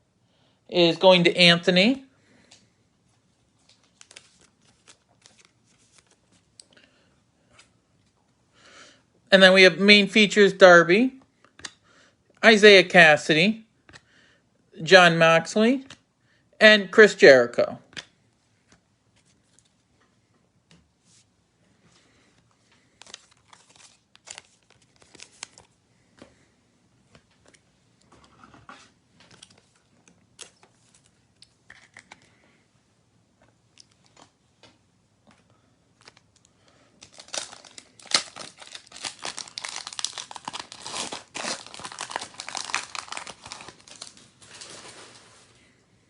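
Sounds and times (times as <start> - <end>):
foil wrapper tearing: 37.0 - 45.0.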